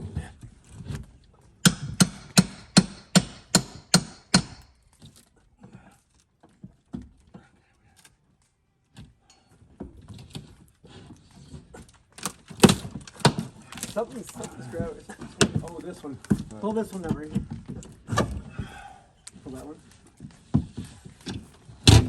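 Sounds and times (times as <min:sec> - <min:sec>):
hammer striking wood: 0:01.6 - 0:04.8, 0:12.6 - 0:13.5
faint knocks and handling noises: 0:04.7 - 0:22.0.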